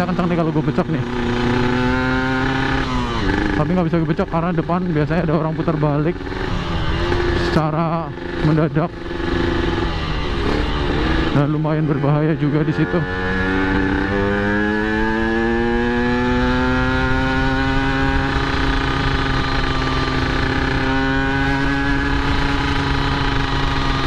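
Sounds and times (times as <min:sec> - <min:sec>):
two-stroke motorcycle engine: 0:00.0 - 0:24.0.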